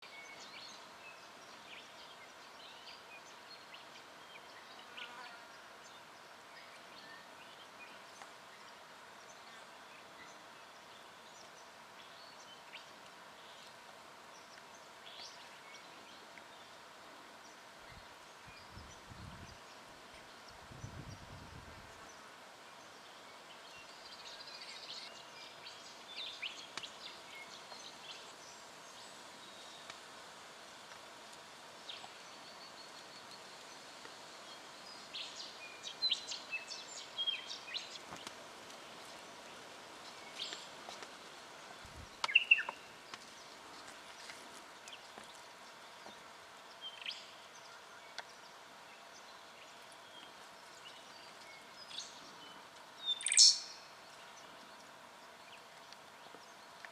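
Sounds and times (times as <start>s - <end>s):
bird chirping: 42.2s - 43.4s, 44.9s - 55.6s.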